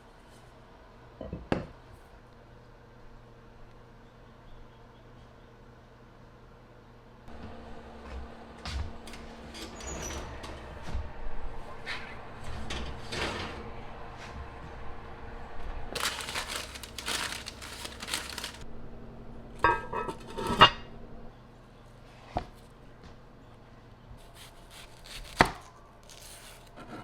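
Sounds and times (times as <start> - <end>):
dishes clinking: 19.6 - 20.8.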